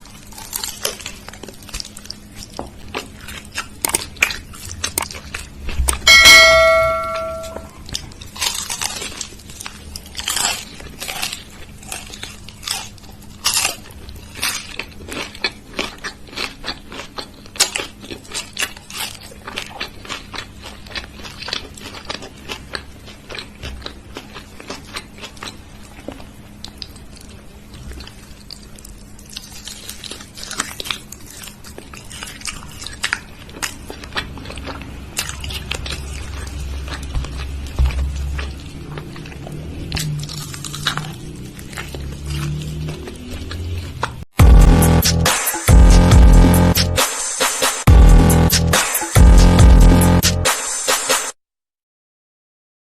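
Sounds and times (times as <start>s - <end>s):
crunching and chewing: 0.0s - 6.2s, 7.6s - 44.3s
bell-like ding: 6.1s - 7.7s.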